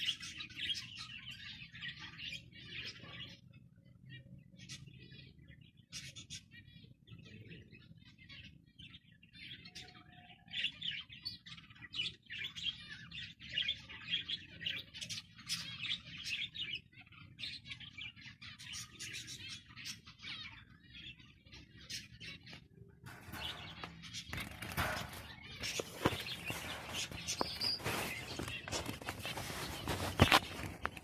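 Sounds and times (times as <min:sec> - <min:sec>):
finches chirping: 0:00.0 - 0:31.0.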